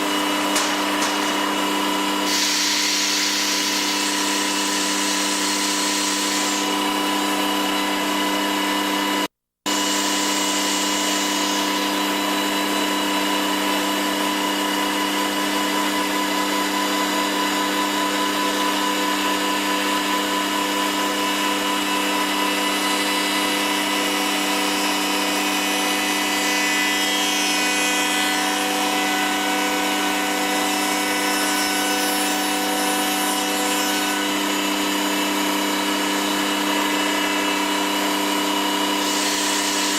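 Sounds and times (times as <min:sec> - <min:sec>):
cutter hissing through wood: 0:00.0 - 0:08.8, 0:09.7 - 0:12.3, 0:28.5 - 0:39.9
router spindle whining: 0:00.0 - 0:39.9.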